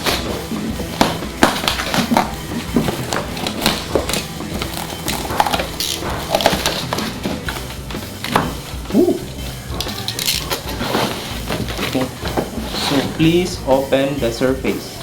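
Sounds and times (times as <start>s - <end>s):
cardboard parcel being torn open: 1.0s - 7.7s, 10.4s - 13.2s.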